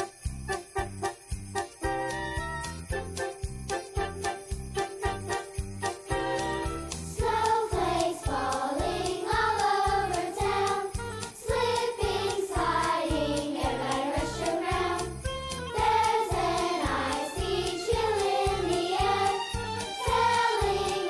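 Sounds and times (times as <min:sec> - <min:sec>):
accompaniment with steady beat: 0:00.0 - 0:21.0
children's choir singing: 0:07.1 - 0:21.0.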